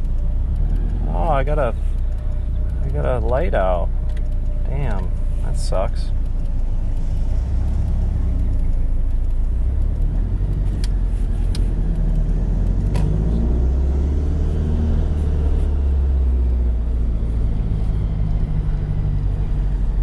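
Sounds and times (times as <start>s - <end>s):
light clicks: 0.0s - 13.8s
sports car engine droning: 0.0s - 20.0s.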